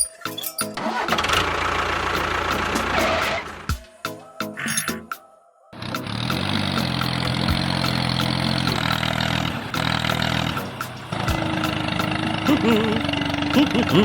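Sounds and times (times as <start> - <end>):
vehicle engine running: 0.8 - 3.7, 5.8 - 14.0.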